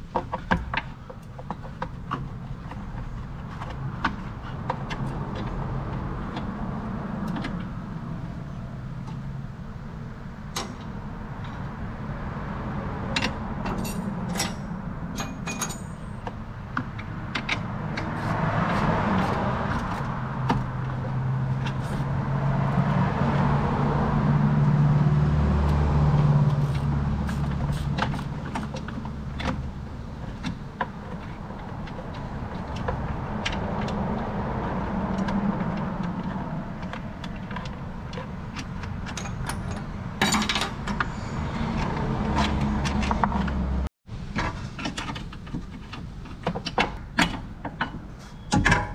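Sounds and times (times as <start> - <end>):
metal tools clinking: 13.7 - 16.2, 39.0 - 41.3.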